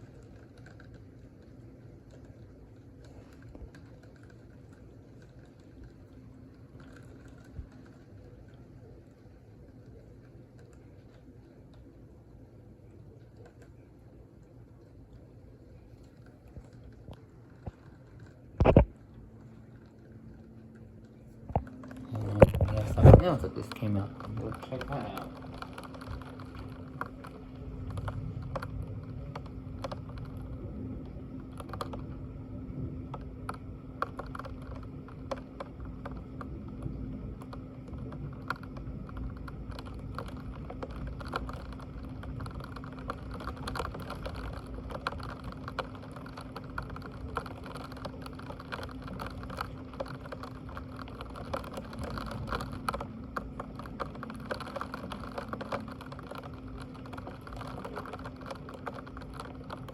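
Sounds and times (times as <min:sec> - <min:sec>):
low electrical hum: 0:00.0 - 0:59.9
computer keyboard typing: 0:21.6 - 0:32.2, 0:33.0 - 0:59.9.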